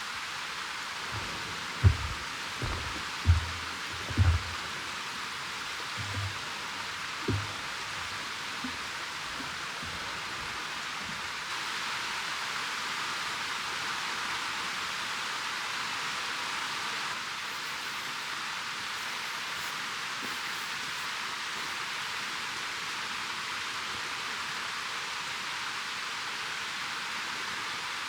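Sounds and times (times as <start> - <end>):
mountain stream rushing: 0.0 - 12.5.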